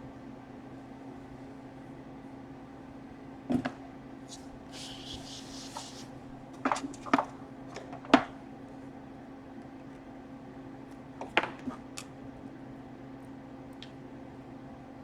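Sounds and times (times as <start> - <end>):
low electrical hum: 0.0 - 15.0
short hiss: 4.3 - 6.1.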